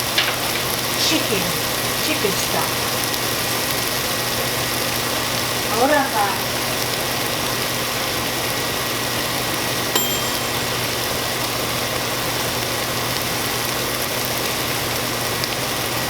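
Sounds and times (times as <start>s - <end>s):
meat sizzling in a skillet: 0.0s - 9.9s, 10.6s - 16.0s
short clink: 10.0s - 10.9s.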